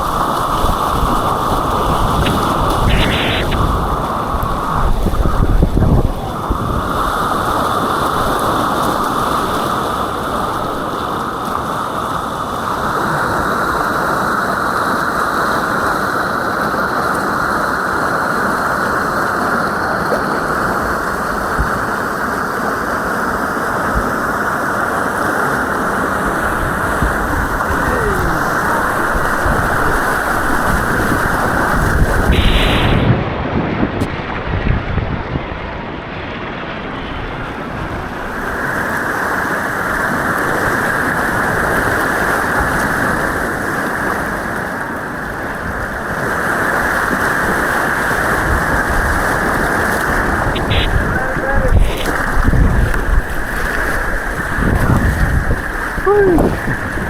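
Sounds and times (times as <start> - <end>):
white water rushing: 0.0 - 33.2, 36.7 - 57.0
loud splash: 47.4 - 57.0.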